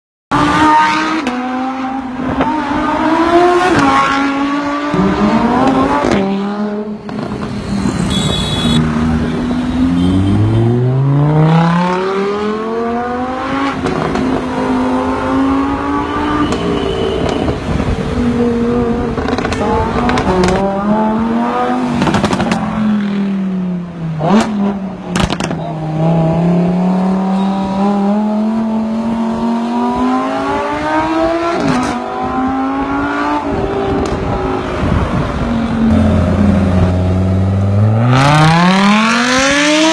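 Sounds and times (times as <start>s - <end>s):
sports car engine revving: 24.2s - 39.9s.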